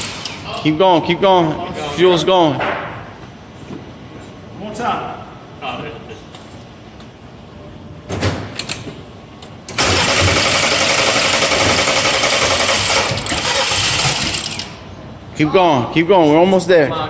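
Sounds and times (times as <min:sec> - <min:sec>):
engine cranking without starting: 0:09.7 - 0:14.8.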